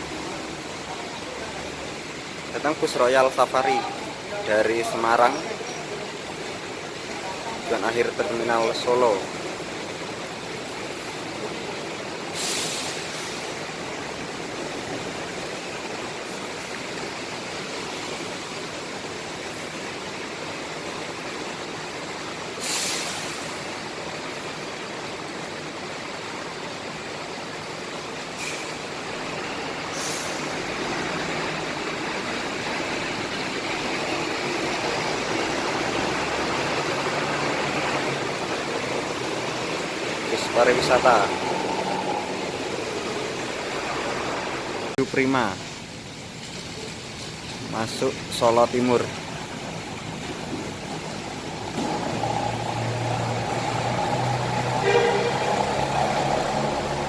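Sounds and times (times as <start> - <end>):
diesel buses running: 0.0 - 48.3, 49.0 - 57.0
air-brake hisses: 12.4 - 13.5, 22.6 - 23.6
bus engine rumble: 28.0 - 45.0, 49.2 - 57.0.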